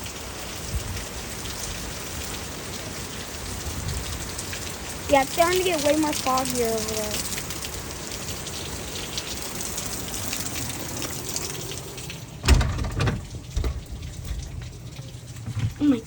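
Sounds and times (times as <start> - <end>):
rain and wind hiss: 0.0 - 16.0
low rumbling buffets: 10.8 - 16.0
loud thump: 12.4 - 13.8.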